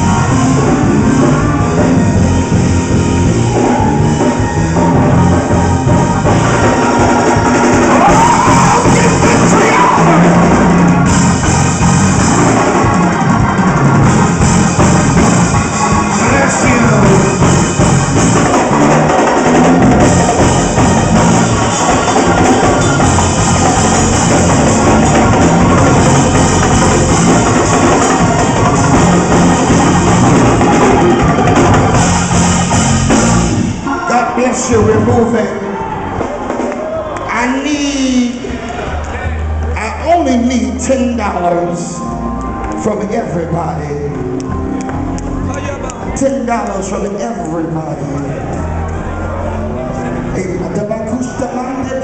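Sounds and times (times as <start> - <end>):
drum kit: 0.0 - 38.9
gospel music: 0.0 - 52.0
organ: 0.0 - 52.0.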